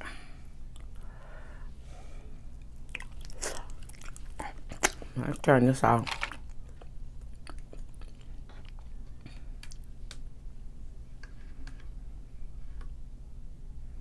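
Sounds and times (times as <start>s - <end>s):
steady low hum: 0.0s - 14.0s
quiet closed-mouth chewing: 0.7s - 1.2s, 2.5s - 5.5s, 6.4s - 10.0s.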